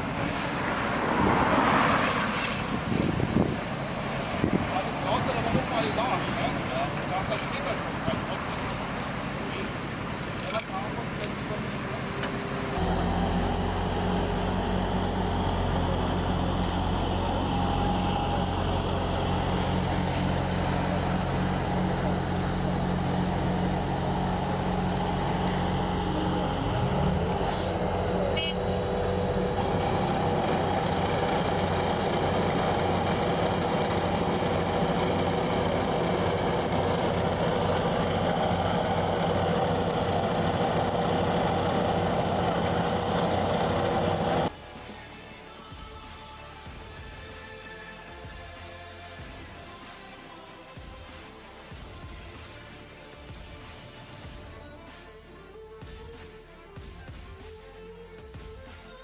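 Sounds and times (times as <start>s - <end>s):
heavy machine engine running: 2.7s - 44.6s.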